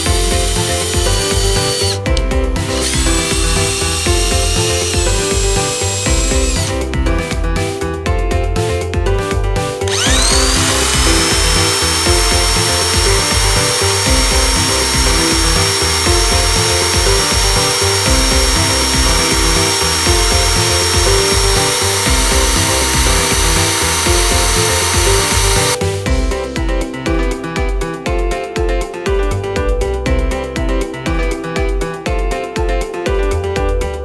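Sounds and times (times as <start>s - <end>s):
background music: 0.0s - 34.0s
vacuum cleaner motor whine: 0.5s - 2.0s, 2.6s - 6.7s, 9.9s - 25.8s.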